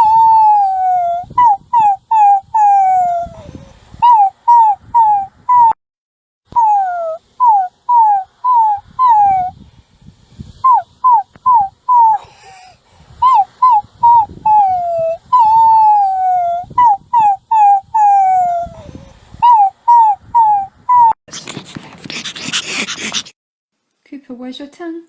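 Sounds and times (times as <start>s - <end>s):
puppy whimpering and crying: 0.0s - 5.8s, 6.6s - 9.5s, 13.3s - 23.4s.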